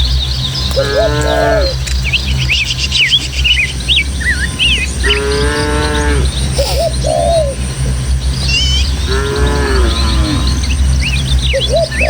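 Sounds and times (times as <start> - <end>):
small birds chirping: 0.0 - 12.0
cattle mooing: 0.7 - 1.8, 5.0 - 6.8, 9.0 - 10.7.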